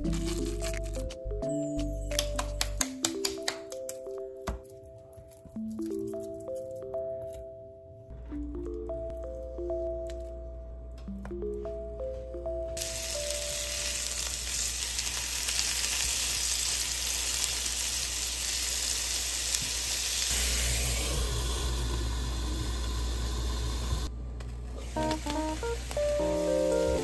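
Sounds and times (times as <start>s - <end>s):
food sizzling in frying pan: 12.8s - 24.1s, 24.8s - 27.0s.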